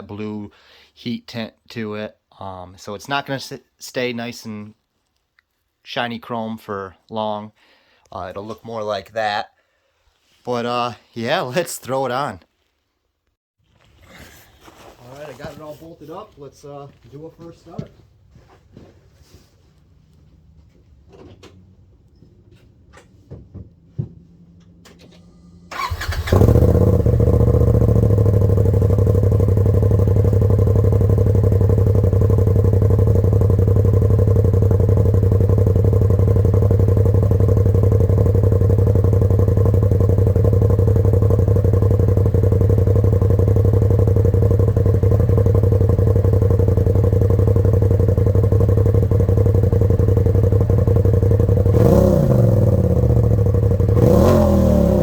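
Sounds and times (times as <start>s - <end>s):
engine revving: 24.3s - 48.4s, 49.4s - 55.0s
engine idling: 24.3s - 55.0s
engine cranking and starting: 24.6s - 28.0s.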